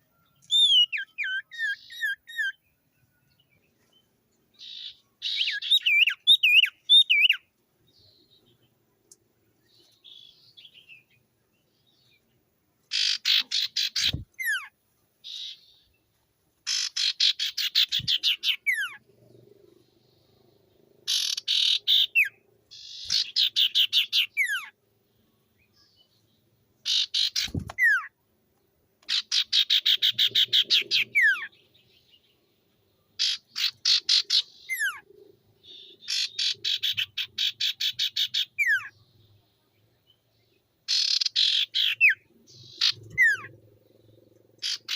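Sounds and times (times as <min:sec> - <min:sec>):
bird chattering trill and whistle: 0:00.4 - 0:02.6, 0:04.6 - 0:07.4, 0:12.9 - 0:15.8, 0:16.6 - 0:19.0, 0:21.1 - 0:24.8, 0:26.8 - 0:28.1, 0:29.0 - 0:31.6, 0:33.2 - 0:39.0, 0:40.9 - 0:44.9.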